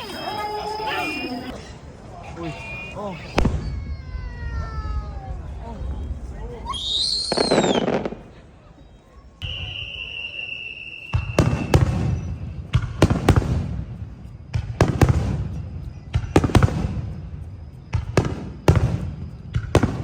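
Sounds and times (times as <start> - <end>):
fireworks booming and cracking: 3.3 - 6.0, 6.9 - 8.4, 11.0 - 20.0.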